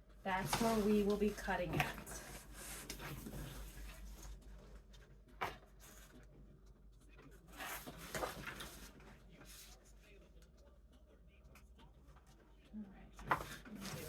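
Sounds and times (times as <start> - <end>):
handling poster board and ruler: 0.3 - 4.3
paper rustling: 0.3 - 4.4, 7.5 - 9.8, 13.2 - 14.0.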